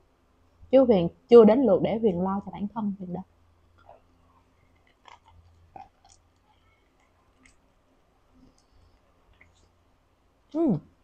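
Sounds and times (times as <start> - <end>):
faint chewing: 3.7 - 9.8.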